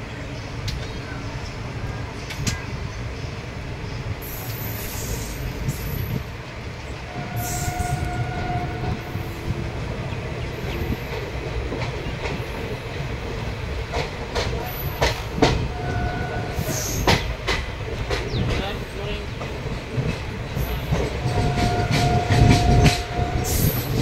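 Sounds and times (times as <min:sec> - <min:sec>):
train coach rumbling on track: 0:00.0 - 0:24.0
wheels clicking over rail joints: 0:10.5 - 0:24.0.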